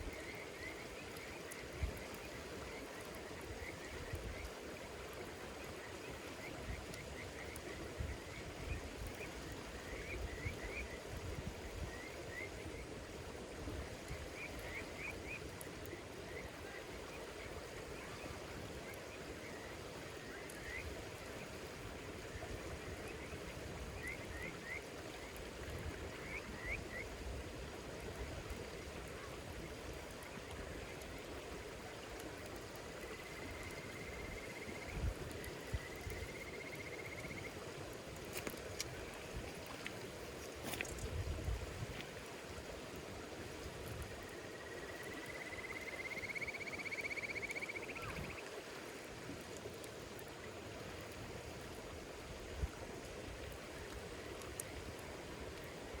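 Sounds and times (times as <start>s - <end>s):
night insects chirping: 33.0s - 37.8s, 44.0s - 48.5s.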